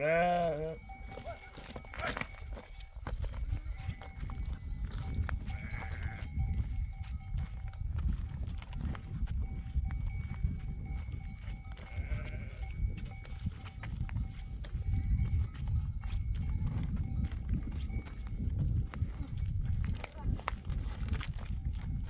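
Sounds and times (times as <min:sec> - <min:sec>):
sheep bleating: 0:00.0 - 0:00.9, 0:05.5 - 0:06.3, 0:11.8 - 0:12.8
sheep bells clinking: 0:00.0 - 0:22.0.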